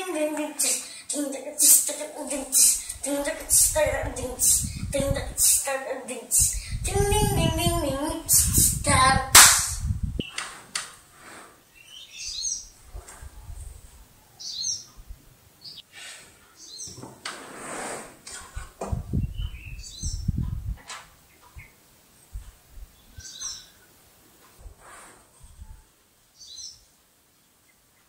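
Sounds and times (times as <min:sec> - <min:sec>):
child singing: 0:00.0 - 0:09.5
low thumps: 0:06.5 - 0:10.3, 0:18.8 - 0:20.9
bird chirps: 0:11.7 - 0:12.7, 0:14.3 - 0:15.0, 0:19.2 - 0:20.4, 0:23.0 - 0:23.9.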